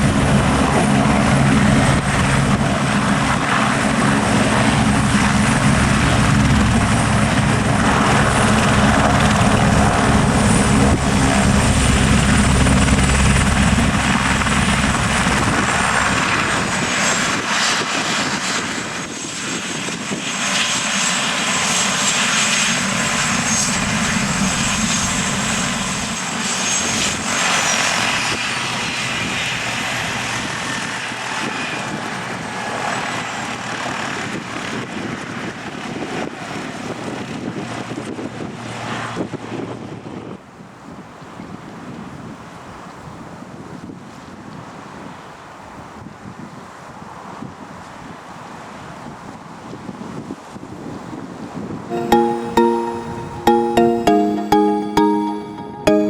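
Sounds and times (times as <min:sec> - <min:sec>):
helicopter rotor beat: 0:00.1 - 0:16.4.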